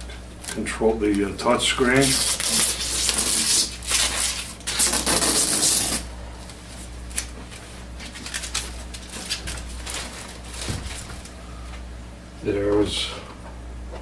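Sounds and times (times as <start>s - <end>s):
plastic film peeling: 0.4s - 11.4s
plastic film rustling: 0.4s - 11.4s.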